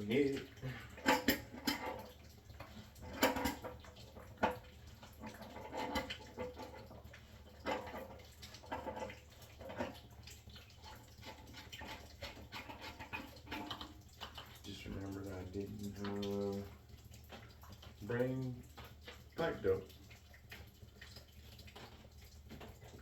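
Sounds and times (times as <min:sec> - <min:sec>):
metal clanks and scrapes: 0:00.6 - 0:10.0, 0:10.8 - 0:14.6.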